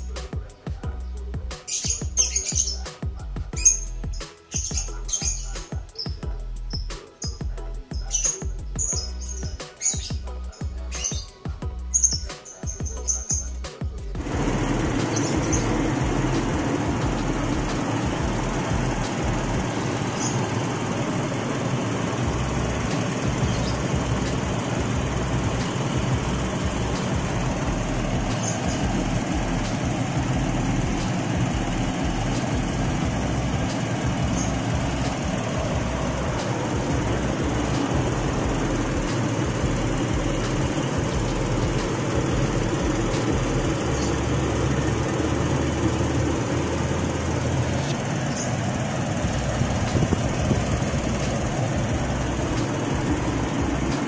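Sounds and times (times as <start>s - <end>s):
car engine running steadily: 13.8s - 54.0s.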